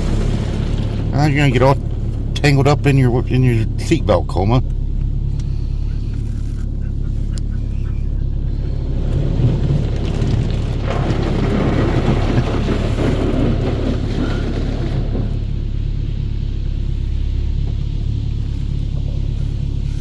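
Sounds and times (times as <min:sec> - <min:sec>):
water spray on car body: 0:00.0 - 0:03.4
car wash low rumble: 0:00.0 - 0:20.0.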